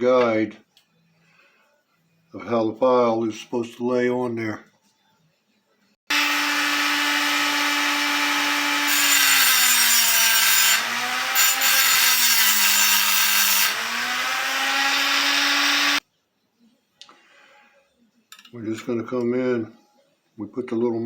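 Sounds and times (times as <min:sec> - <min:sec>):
power tool grinding steel: 0:06.1 - 0:16.0.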